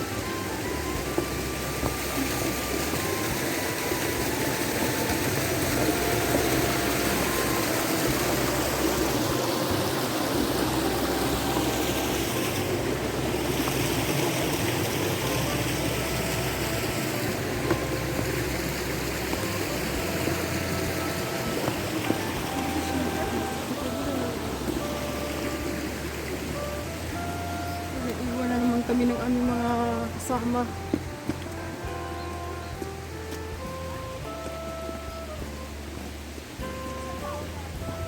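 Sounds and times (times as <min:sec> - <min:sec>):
steady rushing noise: 0:00.0 - 0:29.6
background music with bass line: 0:00.0 - 0:38.0.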